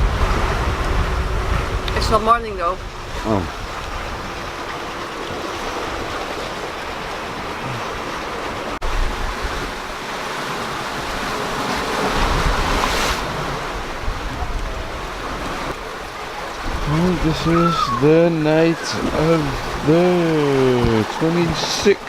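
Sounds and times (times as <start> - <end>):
wind on the microphone: 0.0 - 4.7, 12.0 - 15.9, 16.6 - 21.2
water rushing along a hull: 0.0 - 22.0.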